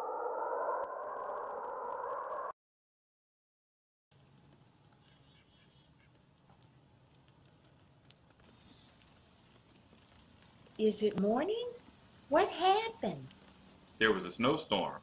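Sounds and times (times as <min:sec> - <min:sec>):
faint birds chirping: 0:04.1 - 0:11.2, 0:13.3 - 0:15.0.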